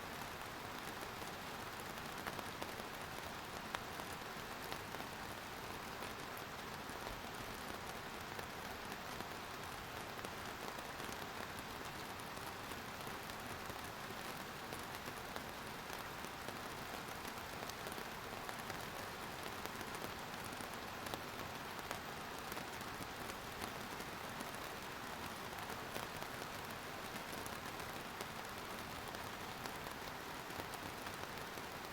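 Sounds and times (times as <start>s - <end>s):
rain pattering on a surface: 0.0s - 31.9s.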